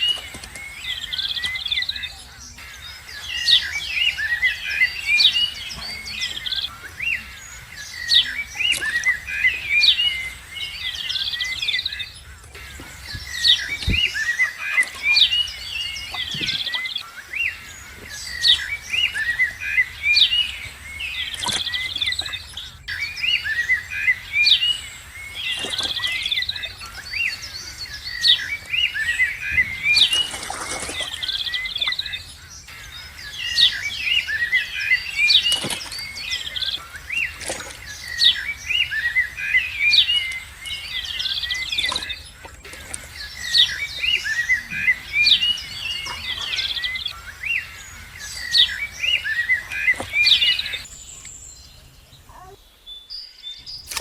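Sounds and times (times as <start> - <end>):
birds chirping and twittering: 0.0 - 54.0.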